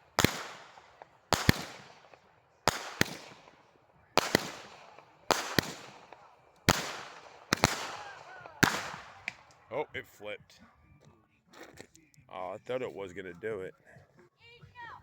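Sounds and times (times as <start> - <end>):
firework crackle: 0.0 - 9.6
firework bangs: 0.0 - 9.7.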